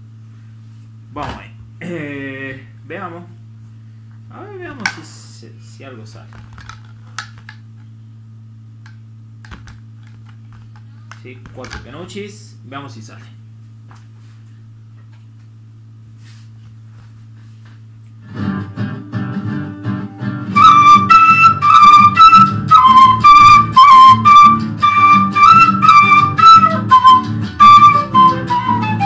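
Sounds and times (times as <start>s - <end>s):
low steady hum: 0.0s - 29.0s
guitar accompaniment: 18.2s - 29.0s
flute melody: 20.0s - 29.0s.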